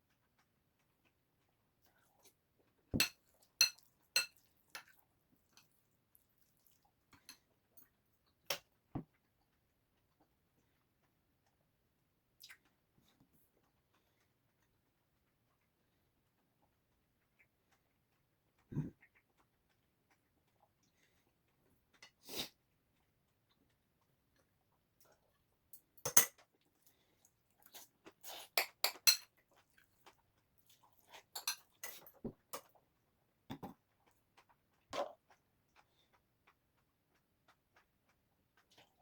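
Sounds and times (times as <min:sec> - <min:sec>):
cutlery clinking against a dish: 0:03.0 - 0:05.0, 0:25.8 - 0:26.5, 0:28.5 - 0:29.4, 0:31.3 - 0:32.7.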